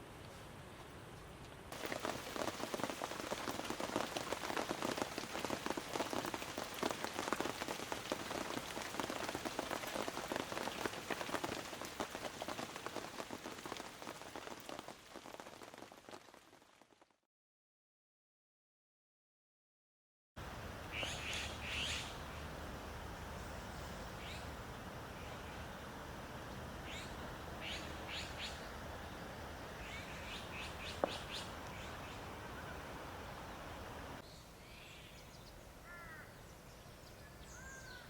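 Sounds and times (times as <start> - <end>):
heavy rain falling: 1.8 - 16.9, 30.1 - 34.2.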